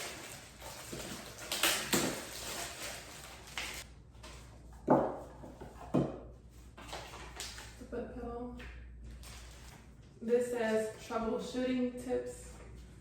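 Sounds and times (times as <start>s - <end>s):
packaging rustling: 0.0s - 4.4s.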